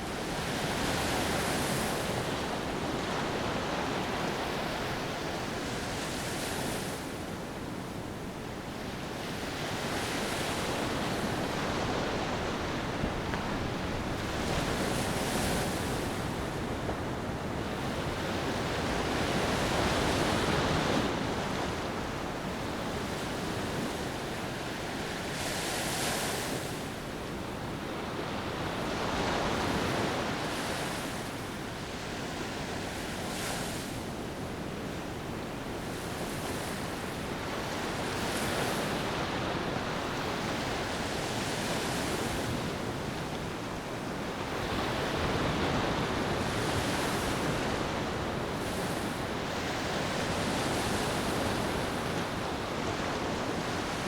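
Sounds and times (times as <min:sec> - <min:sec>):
ocean waves washing onto beach: 0:00.0 - 0:54.0.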